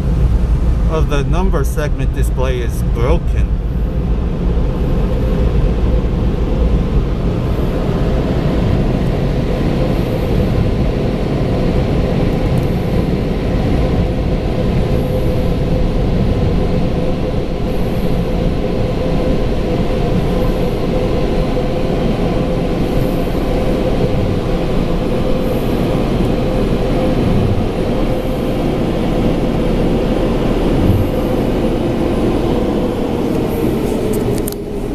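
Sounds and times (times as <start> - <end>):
car wash air dryer blowers: 7.2 - 34.9.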